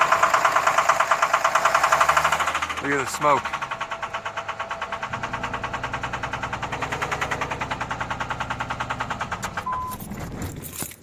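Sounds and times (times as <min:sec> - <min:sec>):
diesel engine knocking: 0:00.0 - 0:09.9
short beep: 0:09.7 - 0:10.0.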